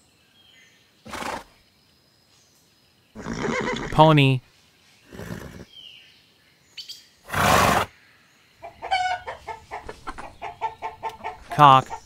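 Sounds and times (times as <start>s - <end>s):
pony snorting: 1.1s - 1.5s, 5.1s - 5.7s, 7.3s - 7.9s
chickens clucking: 8.6s - 12.0s.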